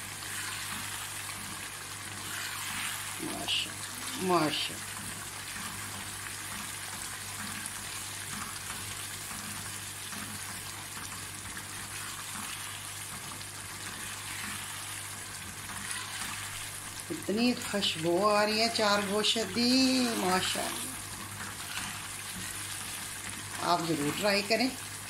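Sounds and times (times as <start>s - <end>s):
gravy sizzling in a pan: 0.0s - 25.0s
spatula stirring: 0.2s - 9.7s, 13.8s - 16.9s, 18.4s - 24.5s.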